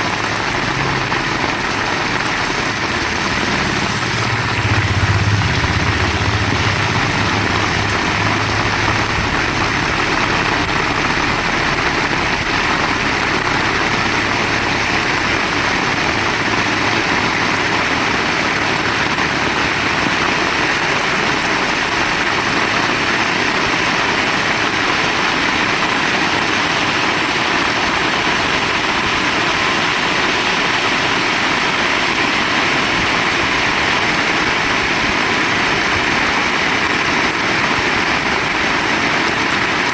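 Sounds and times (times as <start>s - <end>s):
heavy rain hissing: 0.0s - 39.9s
low rumble: 0.1s - 20.6s.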